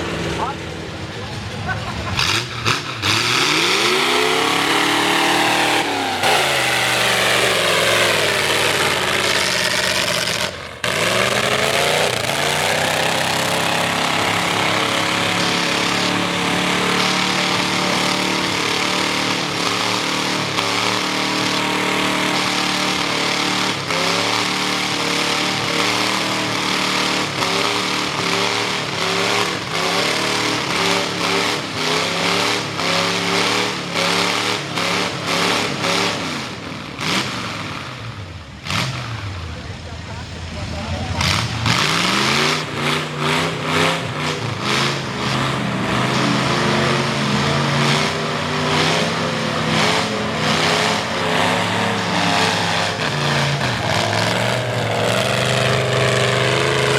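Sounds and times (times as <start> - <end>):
truck engine revving hard: 0.0 - 56.9.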